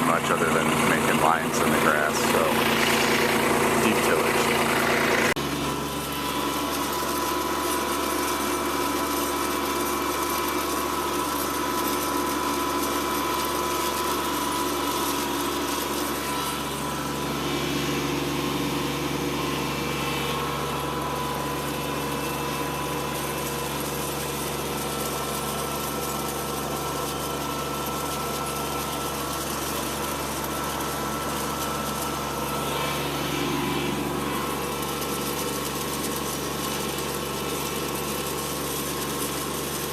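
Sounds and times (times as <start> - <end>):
tractor diesel engine running: 0.0 - 7.8.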